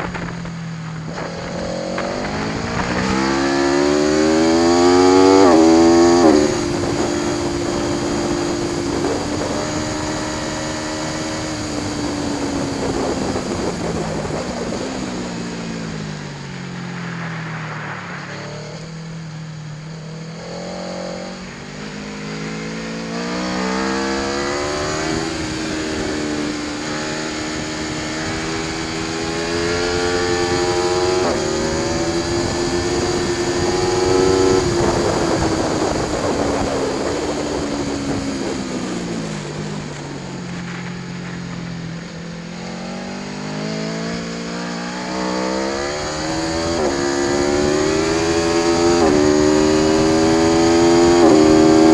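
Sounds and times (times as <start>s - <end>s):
motorcycle engine revving through gears: 0.0s - 51.9s.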